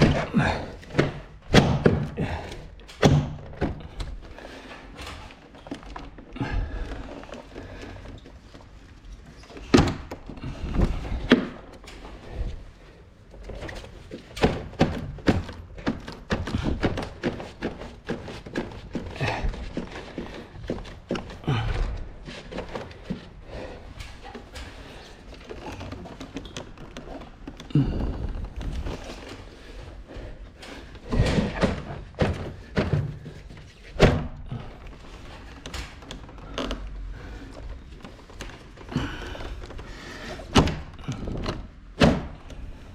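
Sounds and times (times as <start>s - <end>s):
knocks and thuds against wall: 0.0s - 4.1s, 14.4s - 19.9s
sharp clicks and thunks: 0.0s - 12.6s, 13.3s - 42.9s
knocks and scraping of air conditioner: 13.4s - 36.3s.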